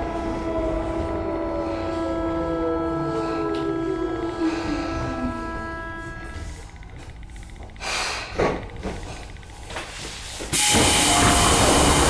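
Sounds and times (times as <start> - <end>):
train rail noise rushing: 0.0 - 7.2, 9.2 - 12.0
compressed air hiss: 10.0 - 12.0.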